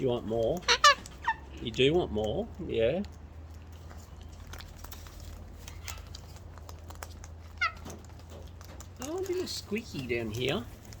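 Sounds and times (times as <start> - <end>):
bird squeaky call: 0.6 - 1.5.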